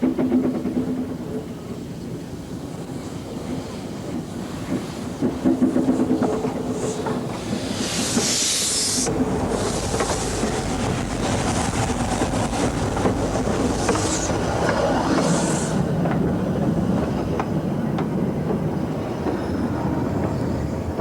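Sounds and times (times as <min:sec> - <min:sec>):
train wheels clattering on rails: 0:00.0 - 0:21.0
steam hissing: 0:02.8 - 0:16.1.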